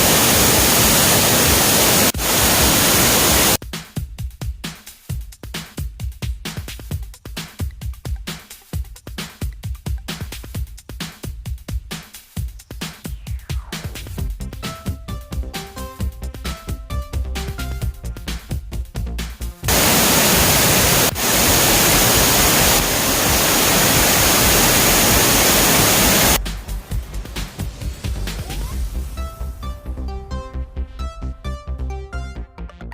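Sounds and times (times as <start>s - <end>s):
waterfall rushing: 0.0s - 3.6s, 19.7s - 29.3s
electronic dance music: 6.7s - 18.6s, 19.2s - 30.0s.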